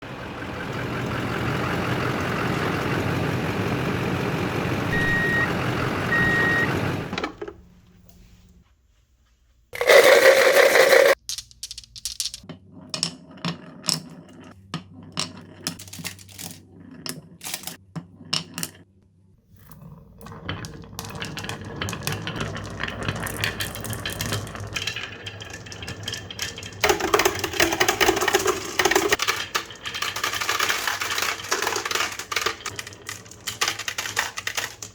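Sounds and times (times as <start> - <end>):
short beeps: 4.9 - 6.7
marbles clacking on wooden run: 9.8 - 18.8, 19.8 - 34.9.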